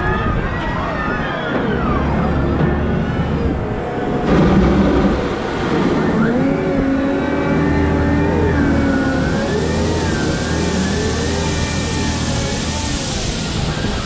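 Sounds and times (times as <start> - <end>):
wheel loader engine whining: 0.0 - 14.0.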